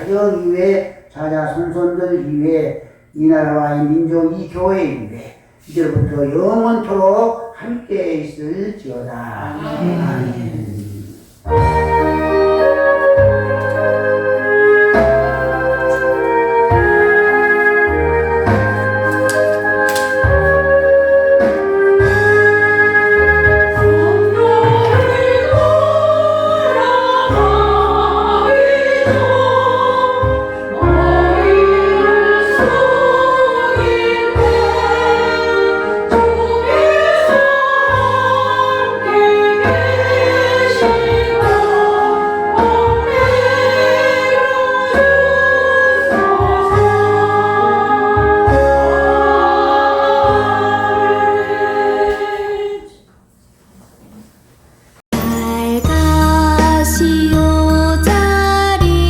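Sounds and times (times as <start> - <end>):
steady bass notes: 9.6 - 51.8, 55.3 - 59.0
choir singing a hymn: 11.4 - 53.0.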